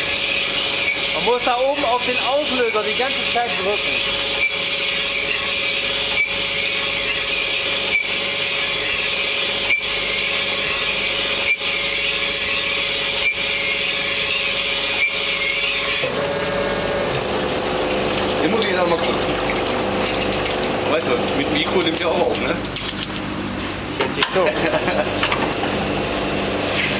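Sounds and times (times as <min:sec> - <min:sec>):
motor whine: 0:00.0 - 0:20.2.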